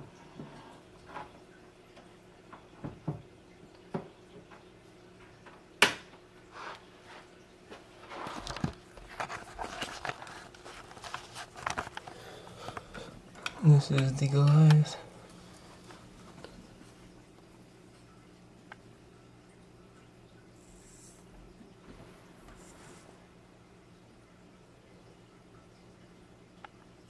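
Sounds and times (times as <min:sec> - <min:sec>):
faint steady hum: 0:00.0 - 0:27.0
rustling: 0:08.2 - 0:12.9.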